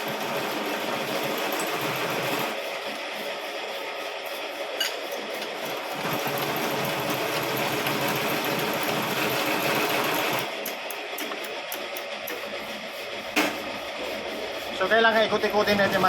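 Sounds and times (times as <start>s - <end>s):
machine motor running: 5.5s - 16.0s.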